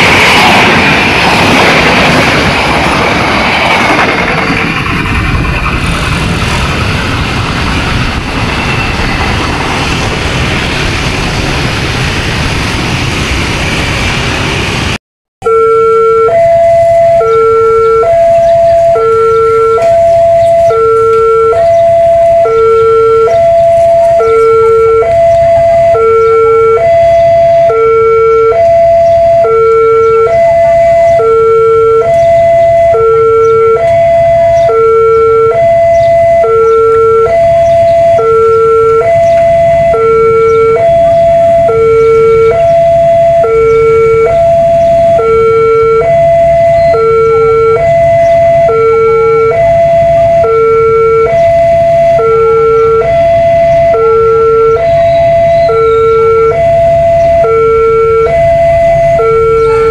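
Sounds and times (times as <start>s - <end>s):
level crossing two-tone alarm: 15.4s - 59.9s.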